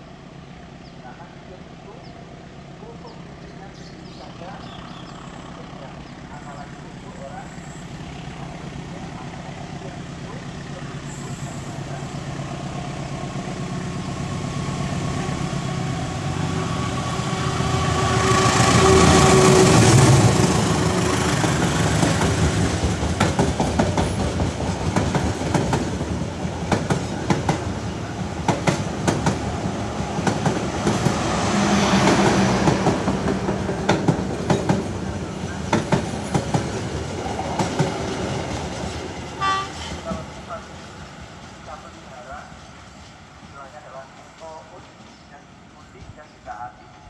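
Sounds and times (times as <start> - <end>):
locomotive engine drone: 0.0 - 47.0
train wheels clicking over rail joints: 21.4 - 27.7, 32.0 - 40.2.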